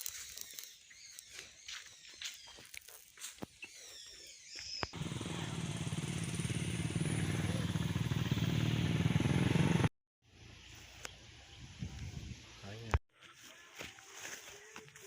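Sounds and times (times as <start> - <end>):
vehicle engine running: 5.0 - 9.9.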